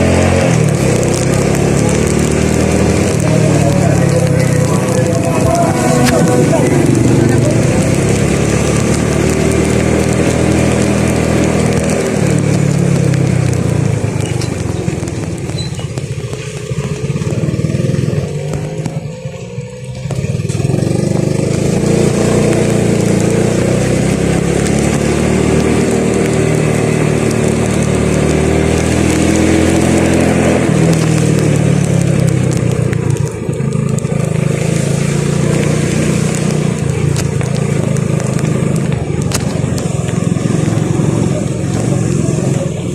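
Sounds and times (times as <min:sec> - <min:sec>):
road and wind noise: 0:00.0 - 0:42.9
vehicle engine running: 0:00.0 - 0:42.9.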